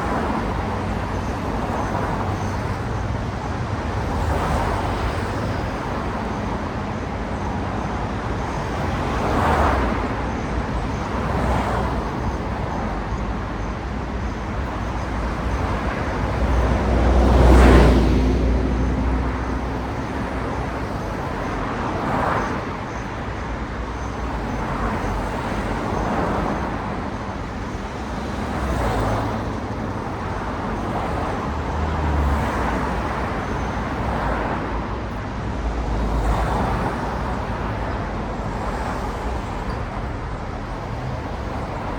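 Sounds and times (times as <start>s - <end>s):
background traffic noise: 0.0s - 41.9s
cars passing by: 0.0s - 41.9s.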